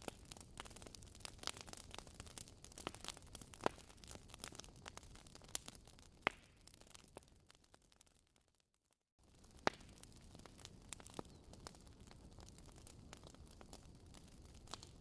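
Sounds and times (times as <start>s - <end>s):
wood fire crackling: 0.0s - 8.6s, 9.2s - 15.0s.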